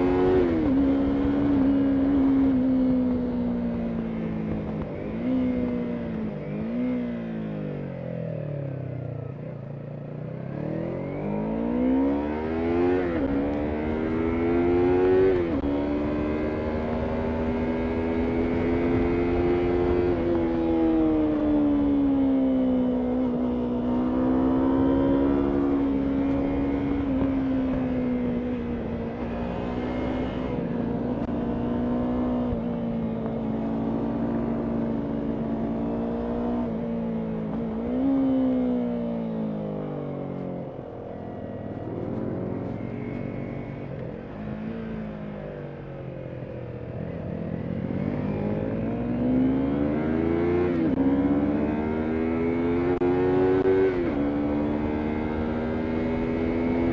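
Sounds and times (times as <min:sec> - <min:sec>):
motorcycle engine running: 0:12.8 - 0:56.9.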